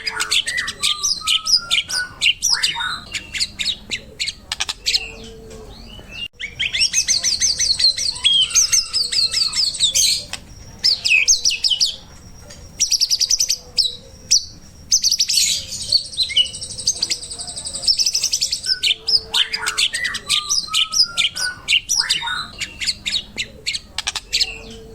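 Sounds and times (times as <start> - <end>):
songbird trilling and chirping: 0.0 - 24.9.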